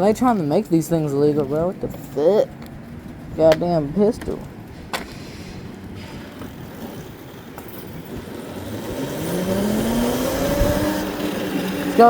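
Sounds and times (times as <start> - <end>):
tyre and wind rumble: 0.0 - 12.0
electric motor whine rising: 8.2 - 12.0.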